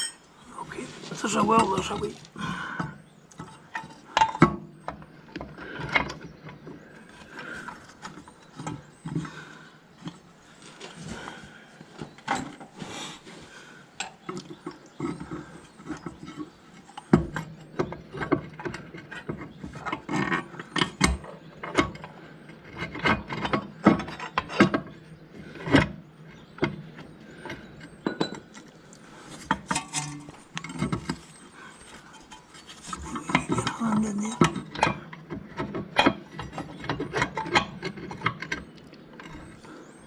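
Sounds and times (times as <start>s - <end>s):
metal parts clinking and scraping: 29.4s - 34.9s.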